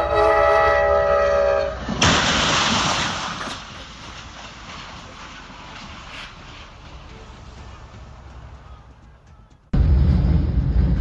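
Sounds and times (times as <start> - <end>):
train horn chord: 0.0 - 1.8
train running rumble: 0.0 - 11.0
train crashing into car: 1.8 - 7.0.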